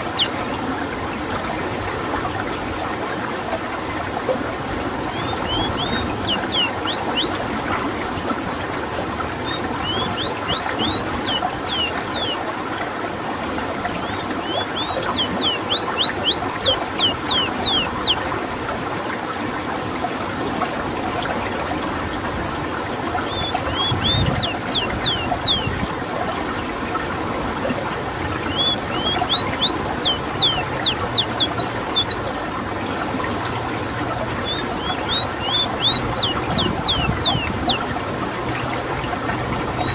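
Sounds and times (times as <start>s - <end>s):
bird singing sliding whistles: 0.0s - 0.3s, 5.1s - 7.4s, 9.4s - 12.4s, 14.0s - 18.2s, 23.3s - 25.8s, 28.5s - 32.3s, 34.4s - 37.8s
running water: 0.0s - 39.9s.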